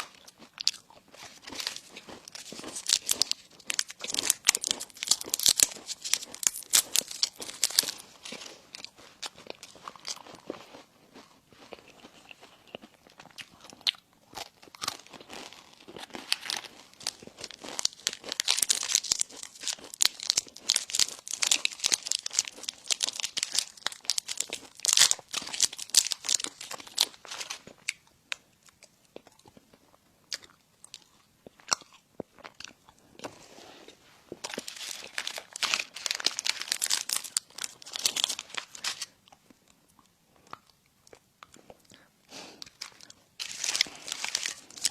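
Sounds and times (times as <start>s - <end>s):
person chewing crunchy food: 0.0s - 44.9s.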